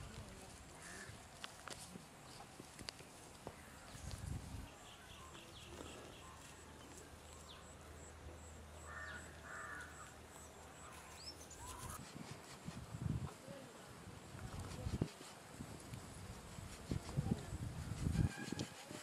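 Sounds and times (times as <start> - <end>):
birds calling: 4.7 - 12.0.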